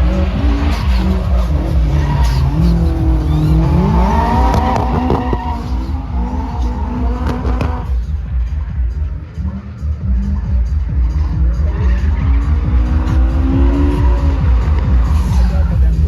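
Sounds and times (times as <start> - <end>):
tyres squealing: 0.0 - 8.0
car engines revving: 0.0 - 16.0.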